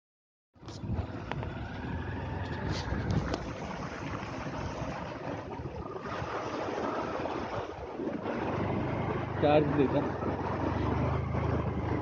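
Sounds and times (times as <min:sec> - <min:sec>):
rushing water: 0:00.6 - 0:12.0
vehicle engine running: 0:08.2 - 0:12.0.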